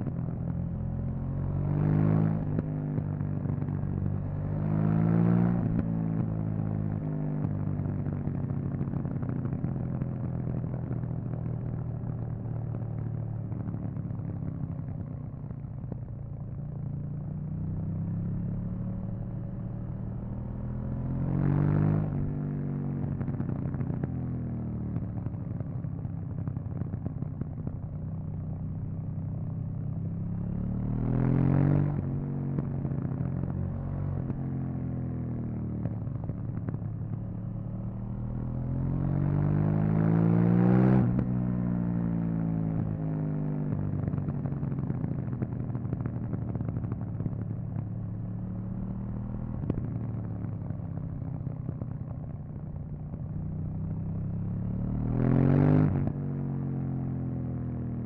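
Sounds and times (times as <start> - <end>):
motorcycle engine revving: 17.6 - 24.1, 28.9 - 43.1, 53.1 - 58.0.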